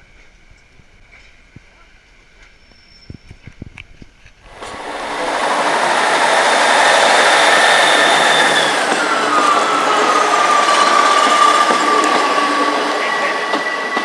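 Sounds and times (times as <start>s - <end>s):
steam locomotive hissing: 4.5s - 14.0s.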